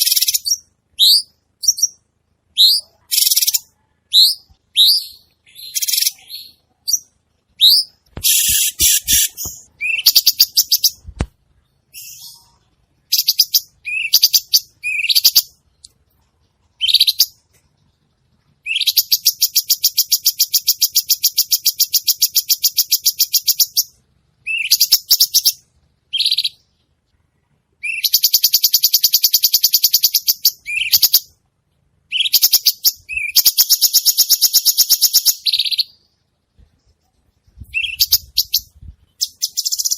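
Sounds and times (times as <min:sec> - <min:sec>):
songbird chirps and rattling trills: 0:00.0 - 0:39.9.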